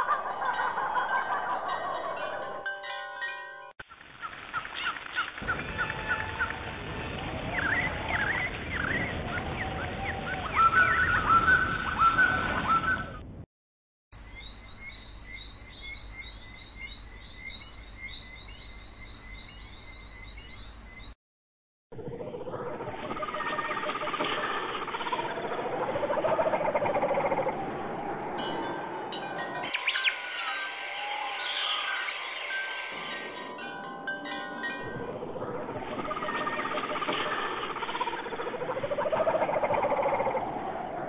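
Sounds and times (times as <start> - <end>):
songbirds chirping and singing: 7.4 - 13.1, 14.2 - 21.2, 29.6 - 33.6.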